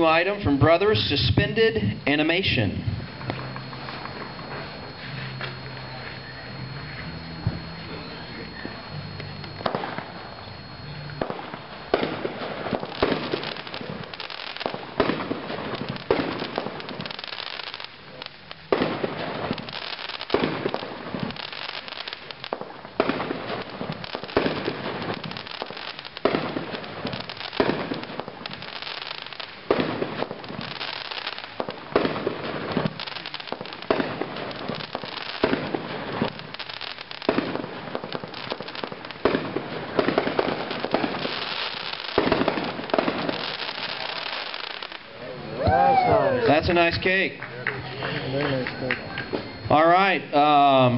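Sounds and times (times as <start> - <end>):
firework cake firing shots: 8.6 - 45.9.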